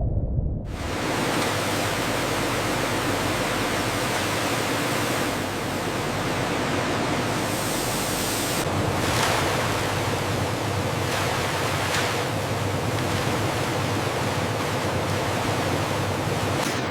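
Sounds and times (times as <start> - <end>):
steady rushing hiss: 0.8 - 11.0.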